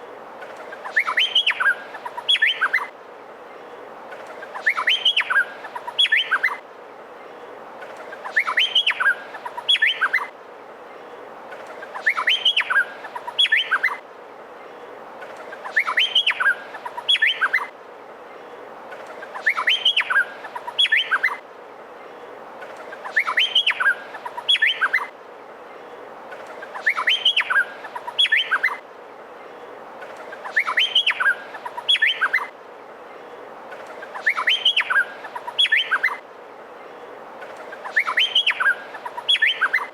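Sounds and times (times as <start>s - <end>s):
steady hiss: 0.0s - 39.9s
bird singing whistled notes: 0.8s - 2.9s, 4.6s - 6.6s, 8.2s - 10.3s, 12.0s - 14.0s, 15.6s - 17.7s, 19.3s - 21.4s, 23.0s - 25.1s, 26.7s - 28.8s, 30.4s - 32.5s, 34.1s - 36.2s, 37.8s - 39.9s.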